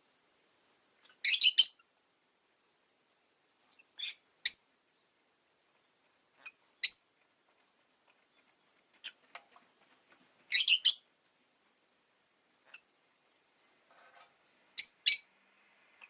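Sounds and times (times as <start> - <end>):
lovebirds chirping: 1.0 - 1.9, 3.6 - 7.2, 10.4 - 11.2, 11.8 - 13.5, 14.7 - 16.0.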